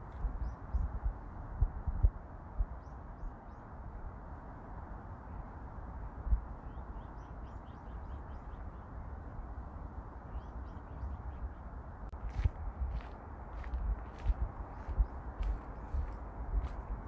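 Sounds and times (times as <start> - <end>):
wind on microphone: 0.0 - 4.2, 10.6 - 17.0
footsteps: 12.1 - 17.0.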